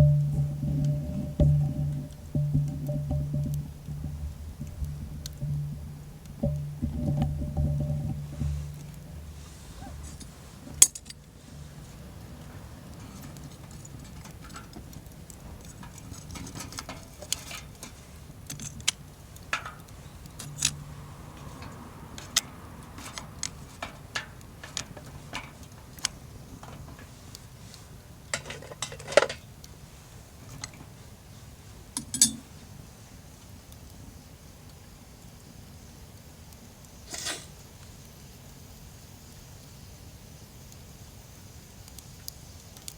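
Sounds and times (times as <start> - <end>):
metal cookware clinking: 0.0 - 10.2, 32.0 - 32.5
low steady hum: 0.0 - 27.0.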